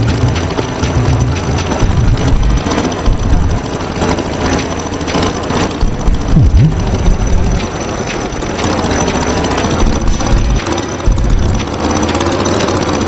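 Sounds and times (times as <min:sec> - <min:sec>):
tractor engine running roughly: 0:00.0 - 0:13.0.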